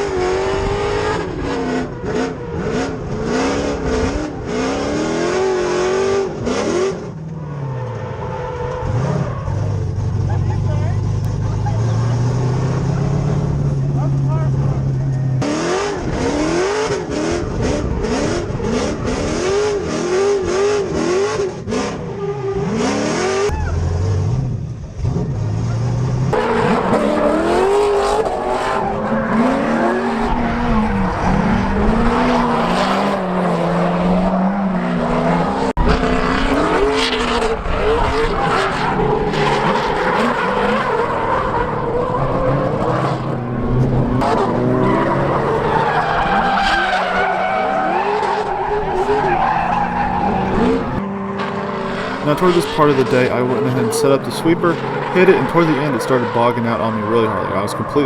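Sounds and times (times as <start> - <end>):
car engine revving: 0.0 - 58.0
tyre squeal: 38.1 - 51.0.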